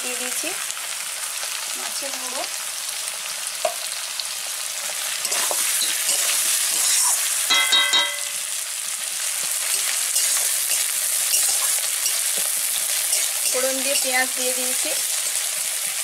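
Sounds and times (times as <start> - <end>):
food sizzling in oil: 0.0 - 16.0
metal spatula scraping pan: 5.2 - 8.4, 9.7 - 14.4
spatula knocking ringing pan: 7.5 - 8.5.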